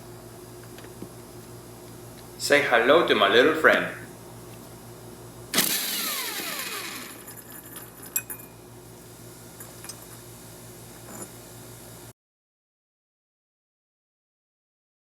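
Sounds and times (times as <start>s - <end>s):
impact wrench burst: 5.5s - 7.4s.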